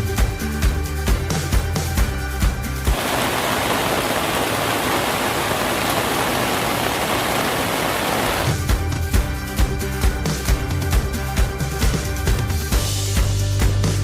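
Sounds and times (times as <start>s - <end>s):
background music with a beat: 0.0s - 2.9s, 8.5s - 14.0s
stream rushing: 2.9s - 8.6s.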